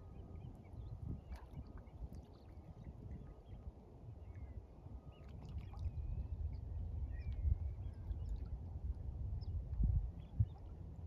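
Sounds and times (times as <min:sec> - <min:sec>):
low rumble on microphone: 0:05.6 - 0:11.0.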